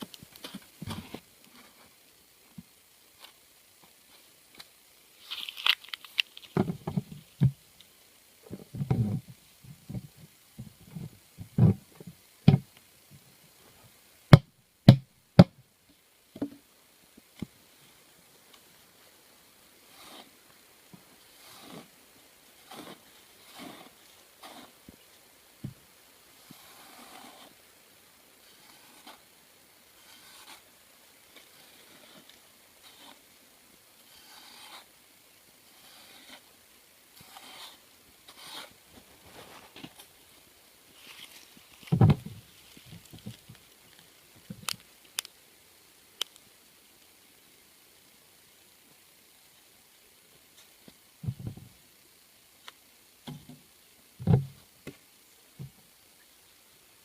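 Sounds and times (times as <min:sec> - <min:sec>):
faint scraping and rubbing: 0:19.8 - 0:20.5, 0:21.1 - 0:25.0, 0:26.4 - 0:27.6, 0:28.4 - 0:29.3, 0:29.9 - 0:33.3, 0:33.9 - 0:34.9, 0:35.6 - 0:36.5, 0:37.1 - 0:44.5.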